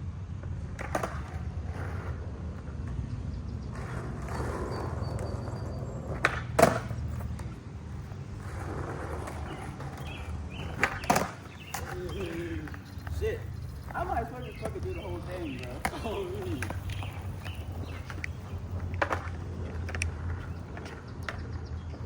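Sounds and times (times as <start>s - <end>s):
skateboard wheels rolling on pavement: 0.0s - 22.0s
skateboard clacks: 0.4s - 22.0s.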